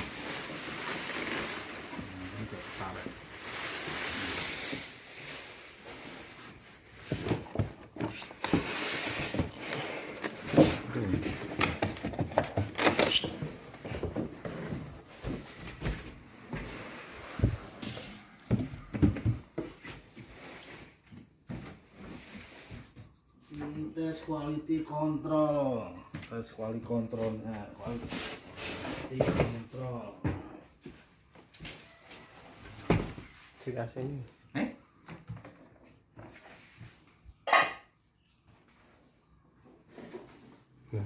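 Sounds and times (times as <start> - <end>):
packaging rustling: 0.0 - 7.5.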